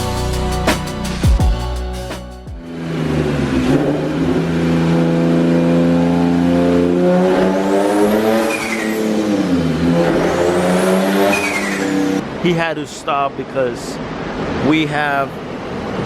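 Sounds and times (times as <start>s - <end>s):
car engine revving: 2.6s - 12.3s.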